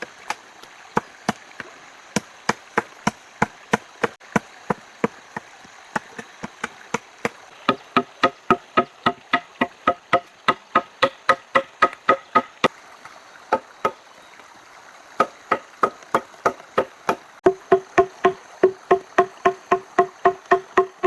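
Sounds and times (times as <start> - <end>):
hand tool striking wood: 2.2 - 4.8, 5.4 - 12.7, 15.2 - 21.0.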